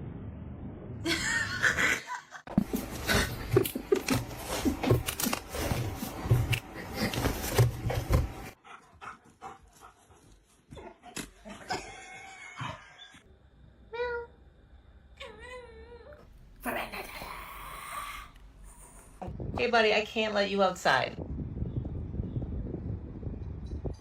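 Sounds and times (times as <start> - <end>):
dog panting: 8.6 - 10.9.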